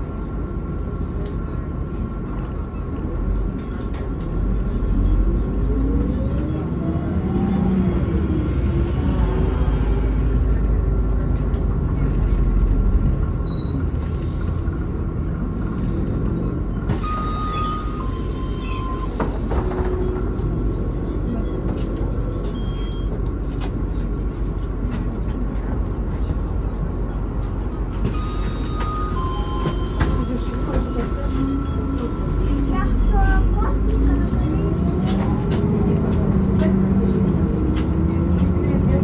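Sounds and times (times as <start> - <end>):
bus engine and road rumble: 0.0 - 39.0.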